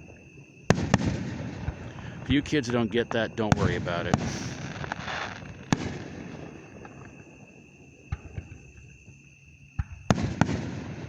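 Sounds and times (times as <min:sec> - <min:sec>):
crickets chirring: 0:00.0 - 0:11.0
firework bang: 0:00.7 - 0:02.8, 0:03.4 - 0:07.2, 0:09.8 - 0:11.0
faint firework pops: 0:03.5 - 0:07.2, 0:08.1 - 0:09.2, 0:09.8 - 0:11.0.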